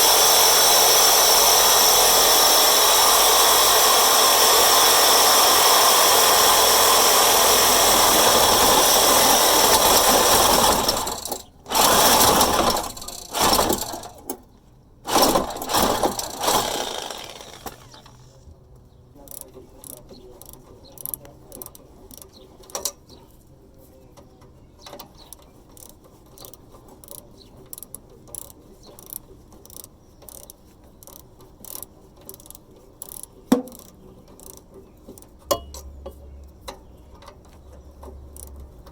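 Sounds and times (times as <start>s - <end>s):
power tool cutting pipe: 0.0s - 14.3s, 15.1s - 18.2s.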